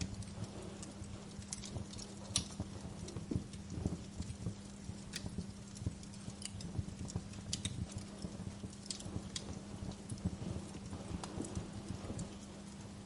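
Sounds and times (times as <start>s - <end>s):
faint low hum: 0.0s - 13.0s
wood fire crackling: 0.0s - 13.0s.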